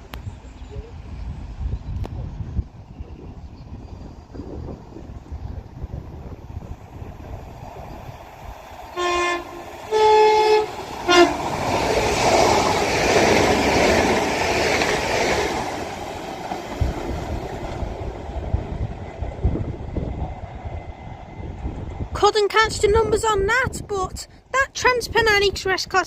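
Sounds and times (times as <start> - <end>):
train passing at speed: 0.0 - 25.3
train horn: 8.9 - 12.2.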